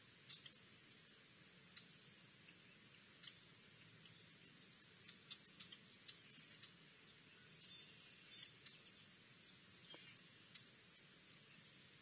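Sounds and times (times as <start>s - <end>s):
distant small birds chirping: 0.0s - 12.0s
quiet outdoor hiss: 0.0s - 12.0s.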